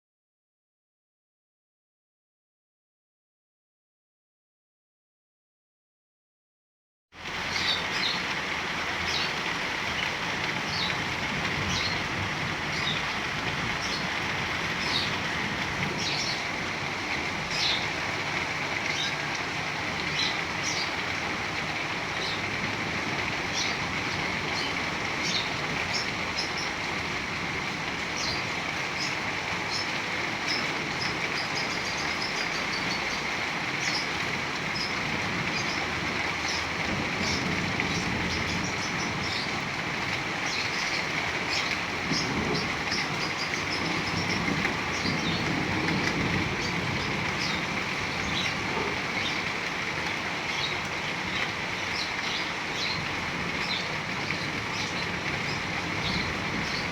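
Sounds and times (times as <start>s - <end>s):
heavy rain falling: 7.2s - 56.9s
birds chirping: 10.0s - 16.8s, 17.4s - 21.1s, 23.4s - 26.9s, 28.1s - 39.7s, 40.4s - 56.9s.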